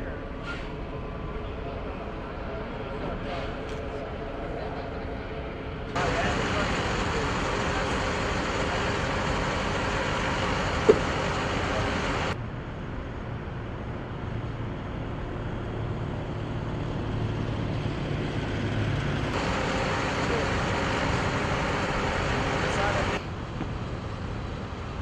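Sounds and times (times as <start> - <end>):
rumbling machinery or traffic: 0.0 - 25.0.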